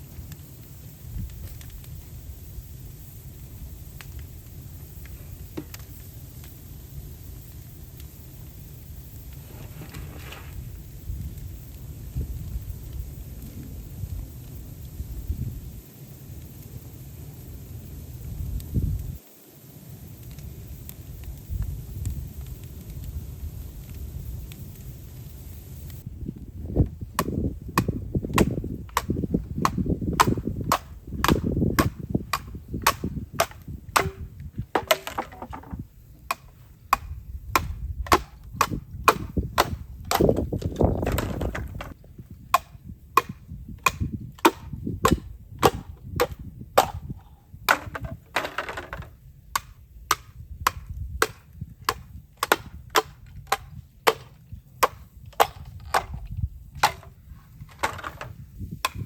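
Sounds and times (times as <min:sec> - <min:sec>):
bamboo cracking strikes: 0:27.2 - 0:59.0.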